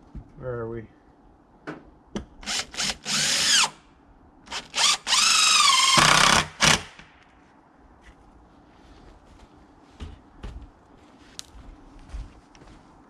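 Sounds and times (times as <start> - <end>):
impact driver whining: 4.5 - 7.0.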